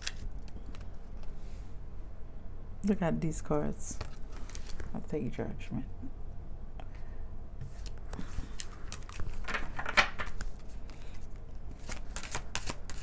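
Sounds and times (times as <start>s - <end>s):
cards being shuffled: 0.0s - 1.4s, 4.0s - 4.9s, 7.6s - 13.0s.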